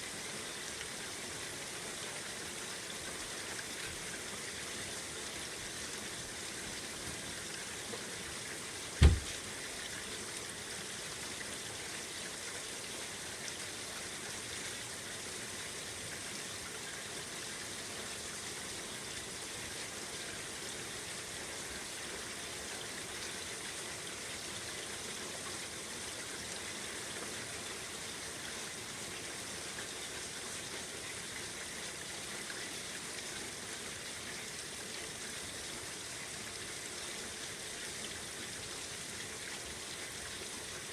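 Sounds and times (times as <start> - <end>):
screen door thump: 9.0 - 9.4.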